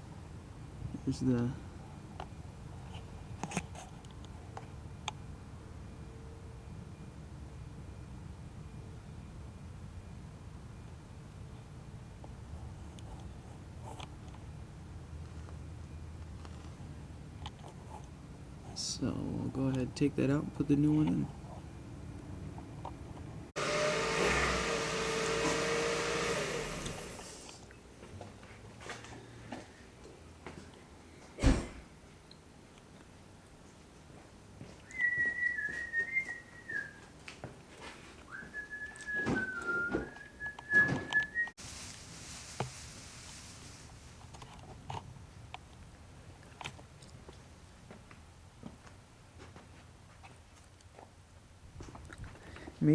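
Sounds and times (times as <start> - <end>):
low hiss: 41.6 - 44.5.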